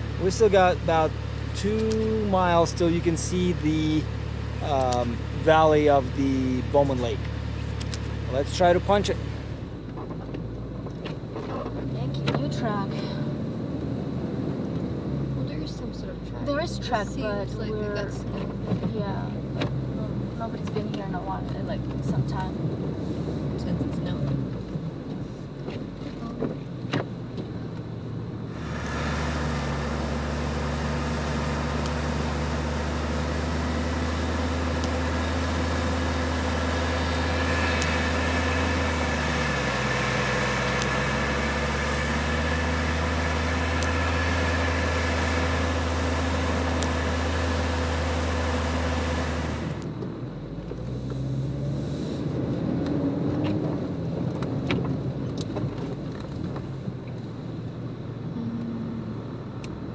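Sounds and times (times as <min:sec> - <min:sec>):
engine revving hard in snow: 0:00.0 - 0:07.2, 0:07.8 - 0:09.3, 0:28.5 - 0:49.8.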